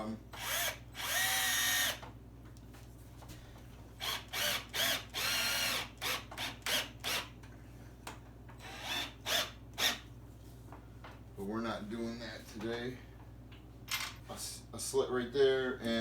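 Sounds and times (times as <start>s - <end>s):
power drill driving screws: 0.4s - 2.0s, 4.0s - 7.3s, 8.6s - 10.0s.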